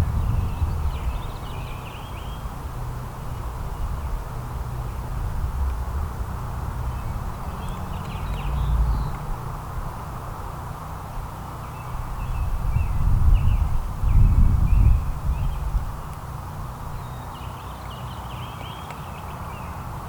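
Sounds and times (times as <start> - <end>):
low uneven rumble: 0.0 - 11.3
songbirds chirping: 0.1 - 5.8, 6.4 - 20.0.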